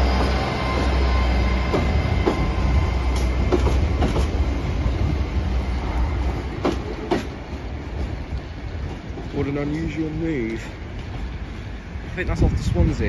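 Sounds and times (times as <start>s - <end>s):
train engine low hum: 0.0s - 13.0s
wheels clacking over rail joints: 1.6s - 4.5s, 6.2s - 12.2s.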